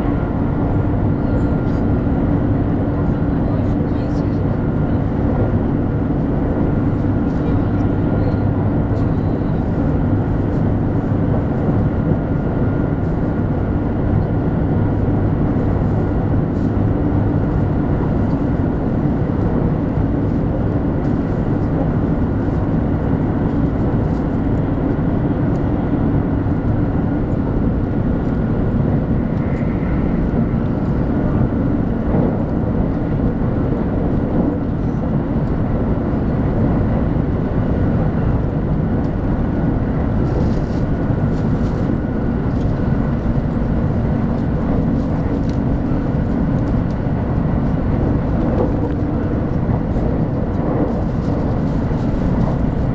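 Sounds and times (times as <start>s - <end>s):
train cabin rumble: 0.0s - 52.9s.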